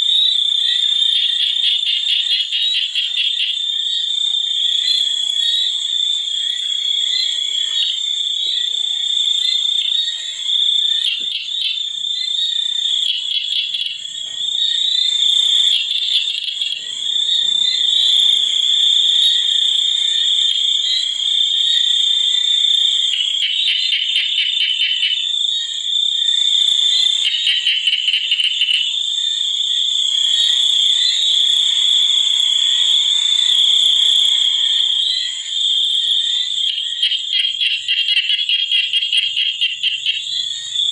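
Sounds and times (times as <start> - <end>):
insects high-pitched drone: 0.0 - 40.9
pulsed frog calls: 0.0 - 40.9.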